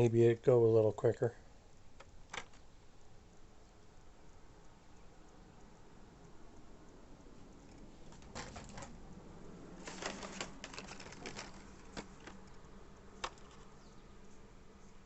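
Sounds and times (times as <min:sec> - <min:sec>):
packaging clicks and crinkles: 0:07.7 - 0:09.0, 0:09.8 - 0:13.7.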